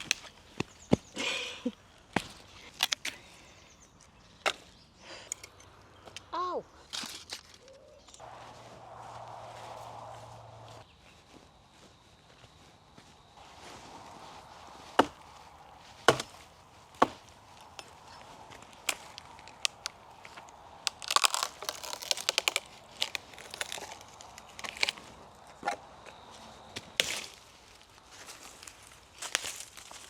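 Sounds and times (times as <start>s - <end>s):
dry sticks snapping and crackling: 0.0s - 6.3s, 6.9s - 10.8s, 13.5s - 30.0s.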